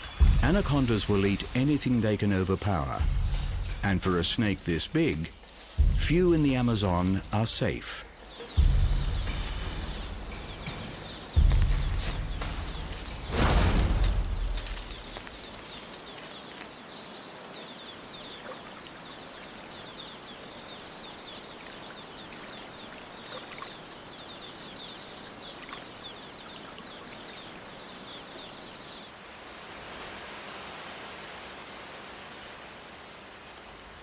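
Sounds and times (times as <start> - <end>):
loud low rush: 0.0 - 15.6
insect and bird chirps: 0.0 - 29.3
soft steady hiss: 0.0 - 34.0
high-pitched insect drone: 8.5 - 13.2.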